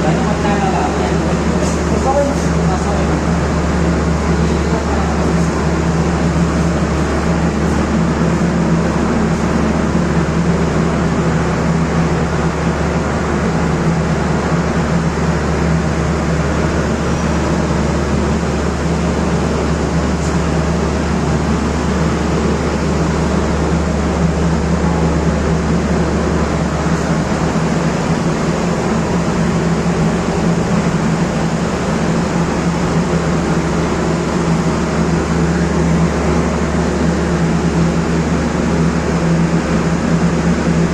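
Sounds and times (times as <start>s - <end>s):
mechanical hum with low drone: 0.0s - 40.9s.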